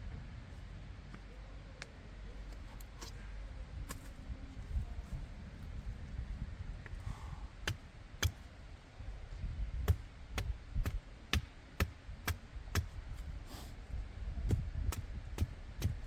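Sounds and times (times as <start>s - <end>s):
low rumble: 0.0s - 11.1s.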